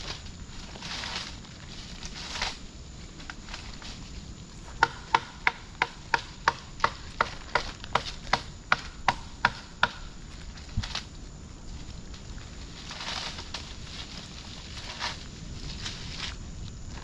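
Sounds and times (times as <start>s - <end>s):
machete chopping wood: 4.8s - 10.1s.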